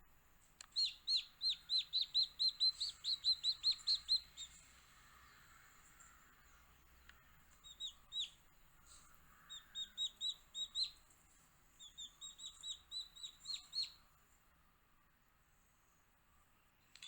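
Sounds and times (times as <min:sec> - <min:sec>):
baby chicks peeping: 0:00.6 - 0:11.2, 0:11.8 - 0:14.1.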